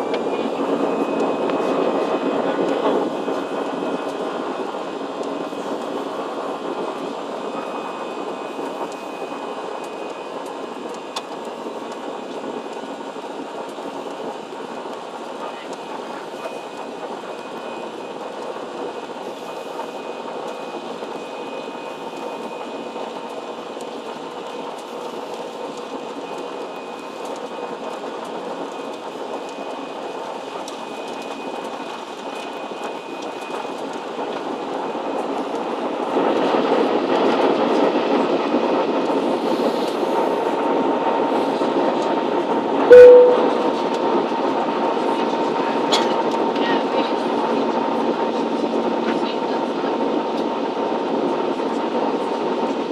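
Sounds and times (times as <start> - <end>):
jet engines rumbling in cabin: 0.0 - 52.9
short loud blip: 42.9 - 43.6.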